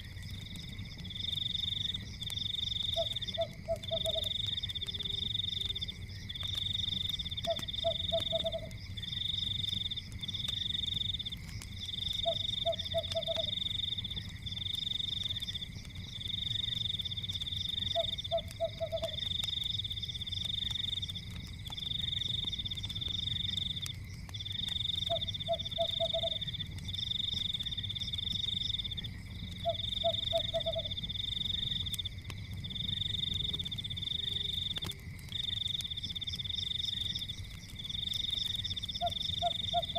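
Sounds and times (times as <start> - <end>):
fire rumbling and crackling: 0.0 - 39.9
frogs trilling: 0.0 - 39.9
low frog croak: 2.9 - 6.0, 7.4 - 8.8, 17.9 - 19.2, 25.0 - 26.5, 29.5 - 31.0, 38.9 - 39.9.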